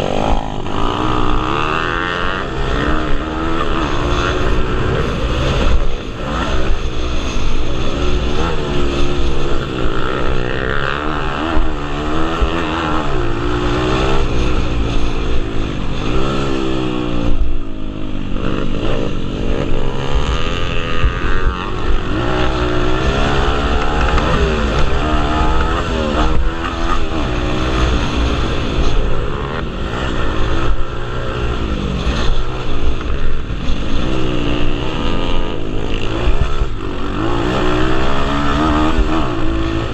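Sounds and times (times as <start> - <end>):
pit bike engines revving: 0.0 - 39.9.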